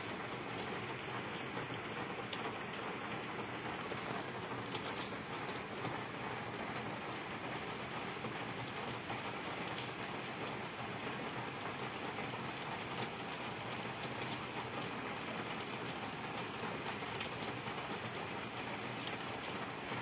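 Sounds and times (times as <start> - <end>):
rain hissing on paving: 0.0 - 20.0
single raindrops ticking: 4.0 - 7.2.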